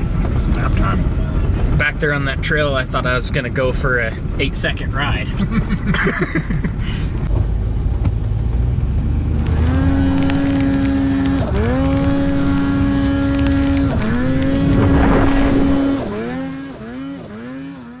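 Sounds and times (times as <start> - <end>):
snowmobile engine at high revs: 9.1 - 18.0.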